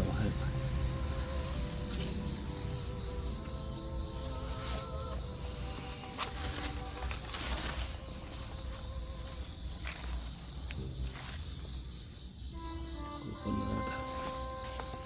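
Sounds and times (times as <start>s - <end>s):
crickets chirping: 0.0s - 15.0s
rustling noise: 4.5s - 11.6s.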